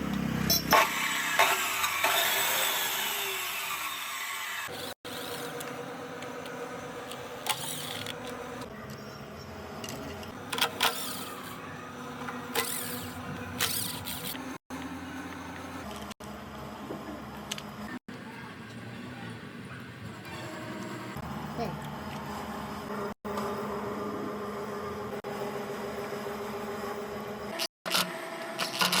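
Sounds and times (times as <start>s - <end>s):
saw motor whining down: 0.0s - 8.7s, 10.3s - 15.9s.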